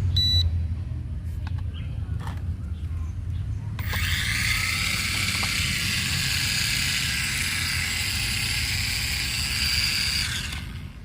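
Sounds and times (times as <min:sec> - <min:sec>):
toy electric motor whining: 0:03.8 - 0:11.0.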